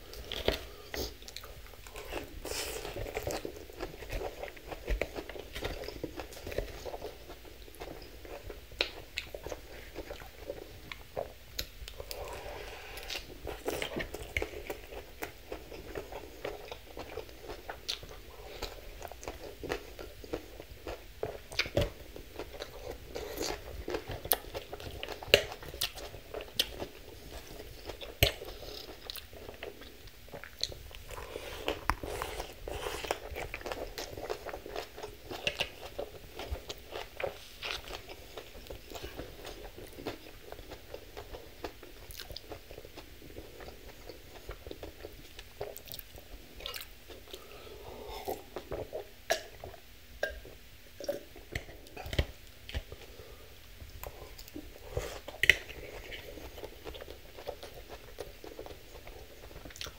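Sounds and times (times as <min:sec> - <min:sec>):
chewing crisp salad greens: 0:00.0 - 0:49.8, 0:53.9 - 0:59.9.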